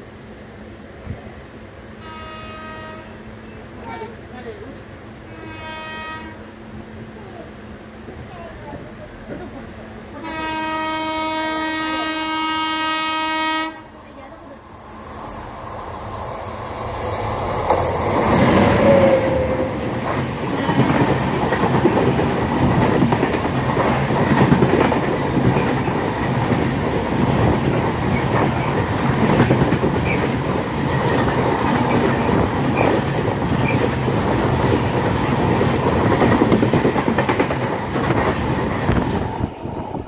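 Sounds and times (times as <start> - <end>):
train rumbling: 0.0 - 40.0
train wheels clattering: 14.0 - 39.4.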